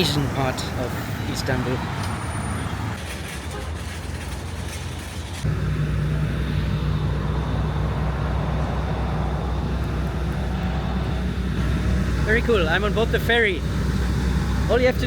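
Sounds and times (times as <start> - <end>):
busy outdoor noise: 0.0 - 15.0
ferry engine drone: 5.0 - 15.0.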